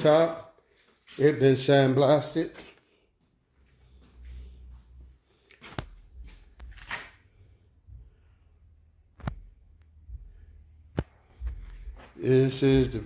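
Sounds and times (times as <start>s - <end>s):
rustling and handling noise: 2.5s - 7.4s.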